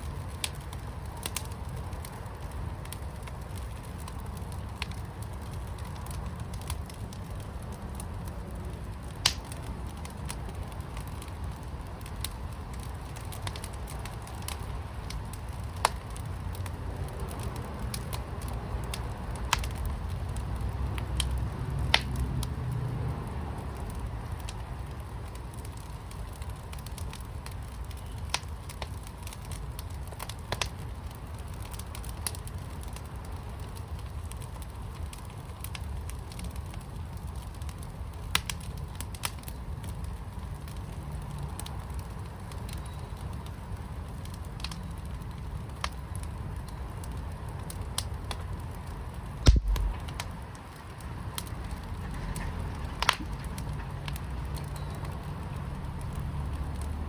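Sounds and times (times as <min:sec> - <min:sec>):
fire crackles and pops: 0:00.0 - 0:57.0
fire low rumble: 0:00.0 - 0:57.0
loud thump: 0:49.5 - 0:50.1.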